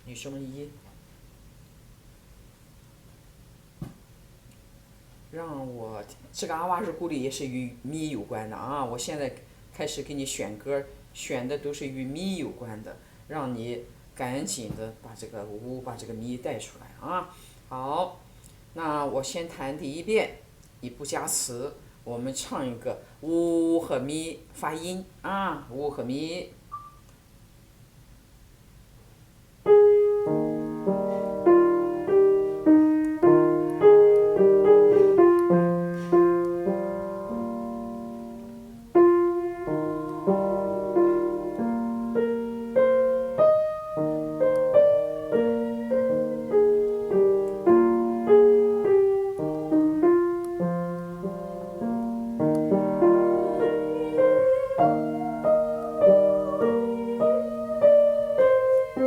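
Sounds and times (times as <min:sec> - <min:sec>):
piano playing: 0:29.7 - 0:59.0.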